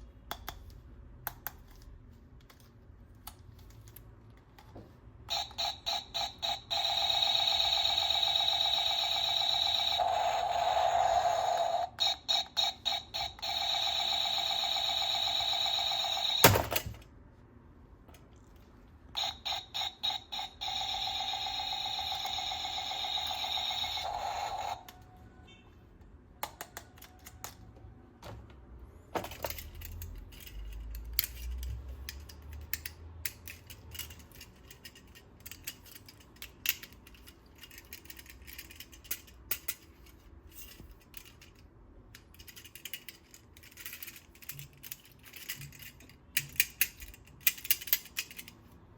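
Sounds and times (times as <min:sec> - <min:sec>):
toy gun electronic sound effect: 0:05.3 - 0:16.9, 0:19.2 - 0:25.0
plastic toy clicks and rattles: 0:05.3 - 0:17.1, 0:26.4 - 0:27.6, 0:29.2 - 0:48.8.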